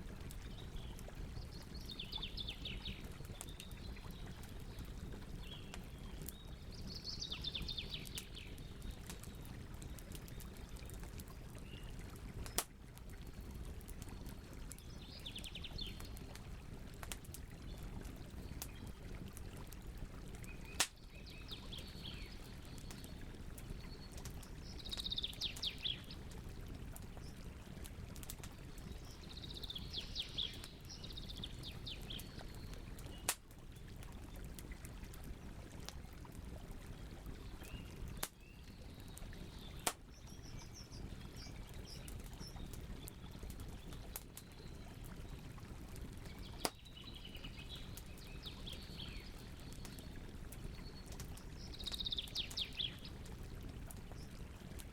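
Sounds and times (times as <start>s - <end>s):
campfire crackling and popping: 0.0s - 54.9s
songbird singing: 0.5s - 9.4s, 20.5s - 23.2s, 23.9s - 26.2s, 28.9s - 33.3s, 37.6s - 43.1s, 46.3s - 51.0s, 51.6s - 53.1s.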